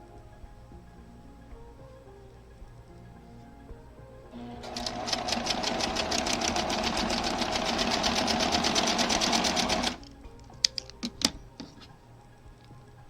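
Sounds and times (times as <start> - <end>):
sewing machine stitching: 4.4 - 10.1.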